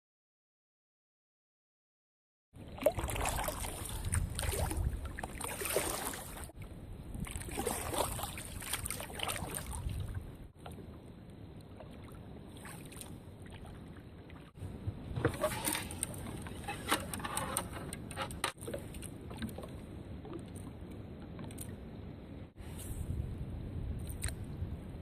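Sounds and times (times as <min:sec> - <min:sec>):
paddle splashing water: 0:02.6 - 0:21.7
wind buffeting microphone: 0:02.9 - 0:11.5, 0:22.1 - 0:25.0.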